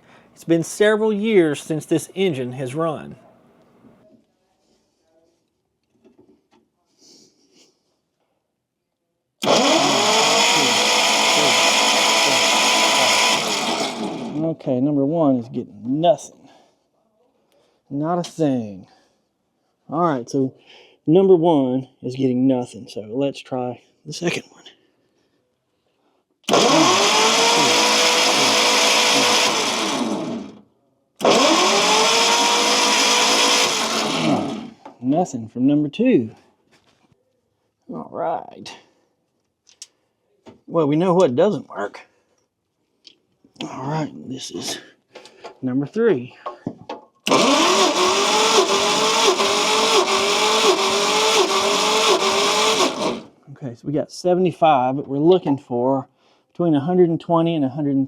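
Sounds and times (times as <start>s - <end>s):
engine running with whine: 9.4s - 14.4s, 26.5s - 30.6s, 31.2s - 34.7s, 47.3s - 53.3s
starter motor cranking: 9.4s - 14.5s, 26.5s - 30.6s, 31.2s - 34.8s, 47.3s - 53.3s.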